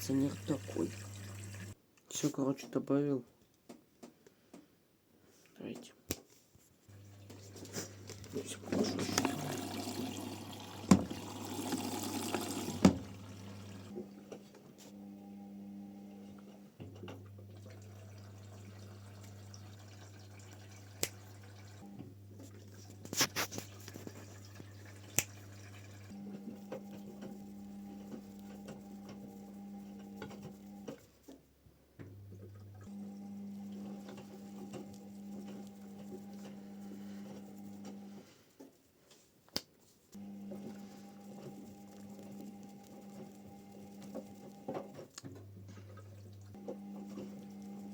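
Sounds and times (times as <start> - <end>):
washing machine hum: 0.0 - 1.8, 6.9 - 38.5, 40.2 - 47.9
water running: 0.0 - 1.8, 6.9 - 14.4, 15.9 - 31.0, 32.4 - 38.1, 40.2 - 47.9.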